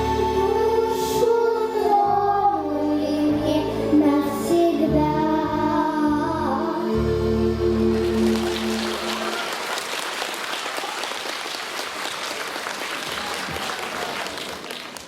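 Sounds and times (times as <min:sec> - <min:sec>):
audience applauding: 0:07.9 - 0:15.0.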